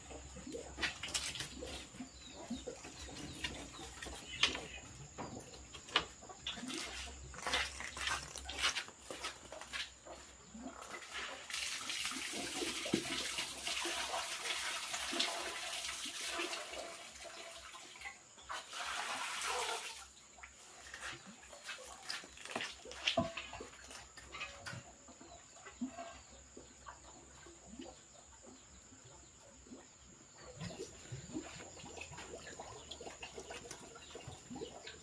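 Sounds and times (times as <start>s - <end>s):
chickens clucking: 0.0s - 11.5s, 20.5s - 35.0s.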